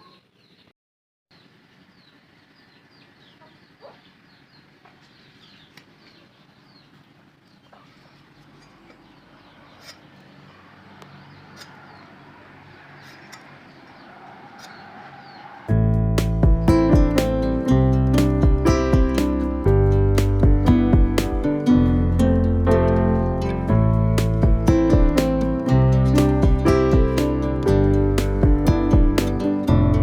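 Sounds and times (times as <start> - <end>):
small birds chirping: 0.0 - 0.7, 1.3 - 19.5.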